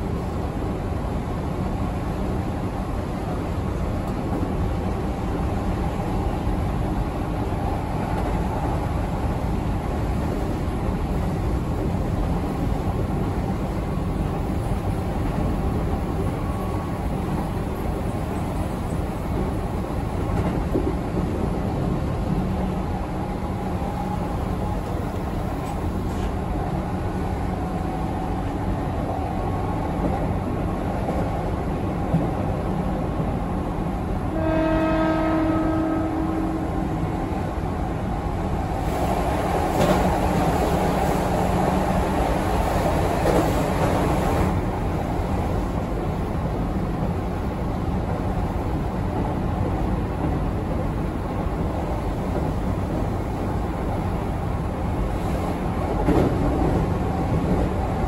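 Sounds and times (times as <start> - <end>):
train wheels rumbling on rail: 0.0 - 58.0
train horn: 34.3 - 37.0.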